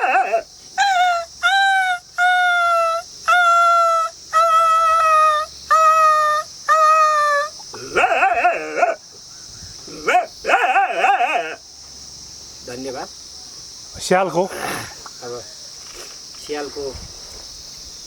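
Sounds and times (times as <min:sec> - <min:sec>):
man imitating dog howling: 0:00.0 - 0:09.0, 0:10.0 - 0:11.6.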